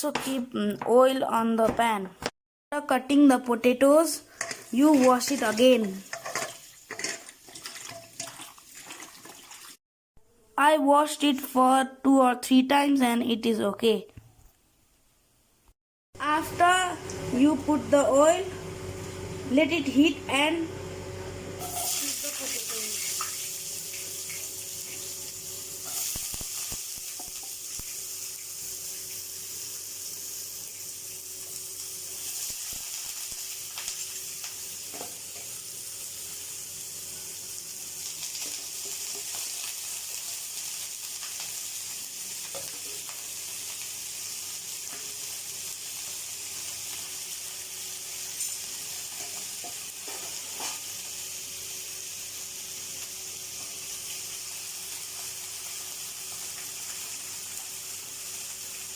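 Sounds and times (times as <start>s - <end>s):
potato sticks sizzling in oil: 3.4s - 9.8s, 21.6s - 58.9s.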